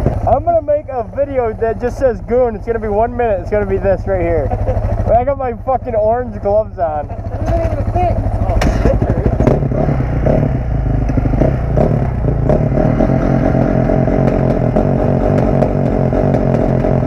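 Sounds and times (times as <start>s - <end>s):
dirt bike engine running: 0.0s - 17.0s
sharp clicks and clatter: 7.0s - 9.7s, 13.4s - 17.0s.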